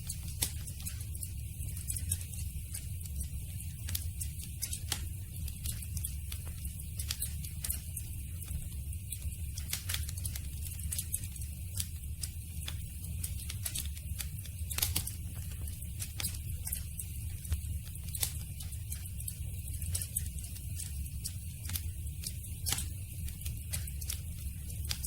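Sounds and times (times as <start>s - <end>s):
low rumble of flames: 0.0s - 25.0s
campfire crackling and popping: 9.3s - 25.0s.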